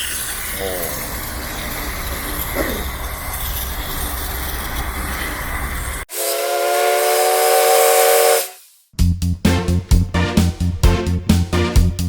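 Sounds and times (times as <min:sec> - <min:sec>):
train whistle chord: 0:06.1 - 0:08.6.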